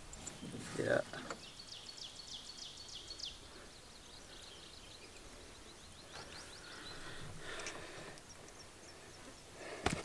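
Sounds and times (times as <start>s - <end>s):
faint bird chirps: 0.1s - 9.6s.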